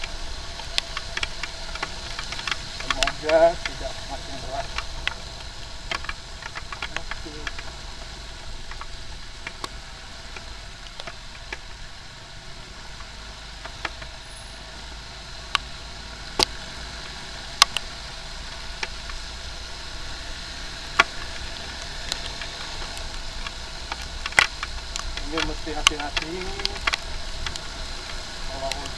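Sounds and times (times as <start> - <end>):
sharp ticks: 0.0 - 7.8, 20.9 - 28.9
motorcycle engine and road noise: 0.0 - 28.9.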